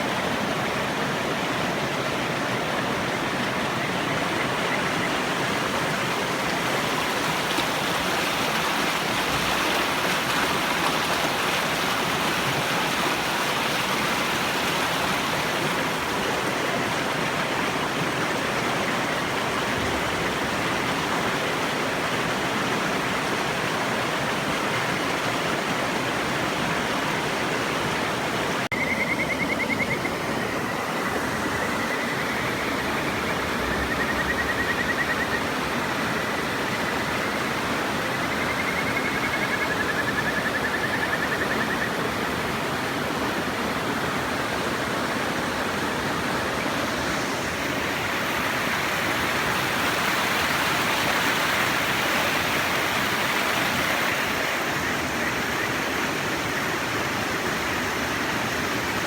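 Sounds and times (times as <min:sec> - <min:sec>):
river water rushing: 0:00.0 - 0:59.0
frog trilling whistled calls: 0:28.7 - 0:35.5, 0:38.1 - 0:42.0.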